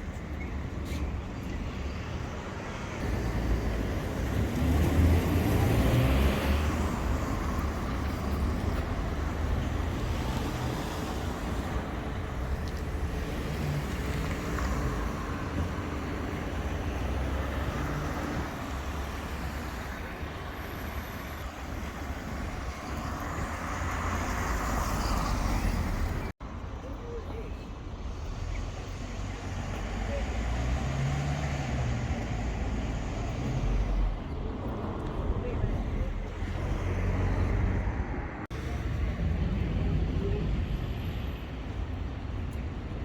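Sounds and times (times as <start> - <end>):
vehicles passing: 0.0 - 43.0.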